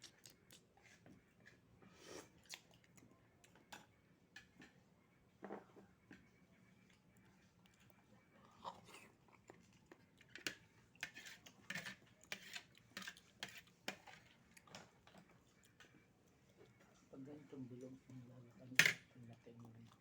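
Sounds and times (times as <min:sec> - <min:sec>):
wet chewing smacks: 0:00.0 - 0:00.7, 0:02.2 - 0:03.0.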